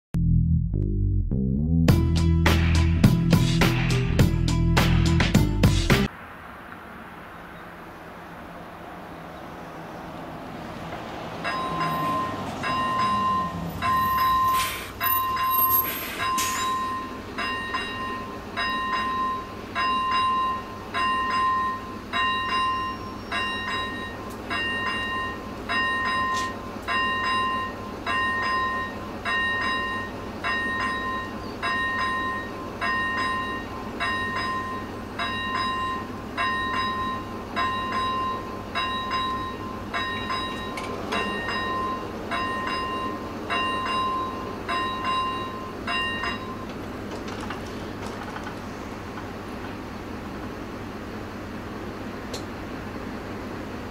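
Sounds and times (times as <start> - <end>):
vehicle passing: 6.1 - 15.0
level crossing warning bell: 10.8 - 47.4.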